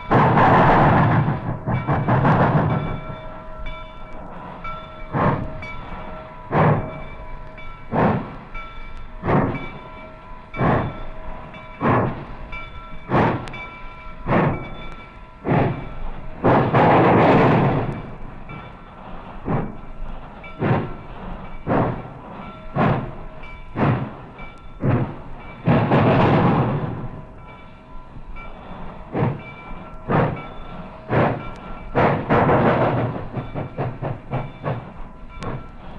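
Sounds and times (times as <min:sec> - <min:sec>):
steam blast: 0:00.0 - 0:35.9
steam locomotive exhaust chuffs: 0:00.0 - 0:35.9.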